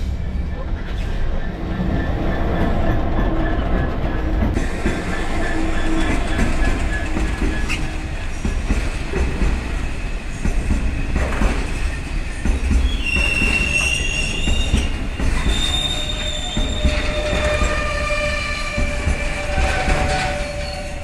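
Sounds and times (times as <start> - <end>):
freight train rumbling: 0.0 - 21.0
high wheel squeals: 1.7 - 8.7, 12.8 - 21.0.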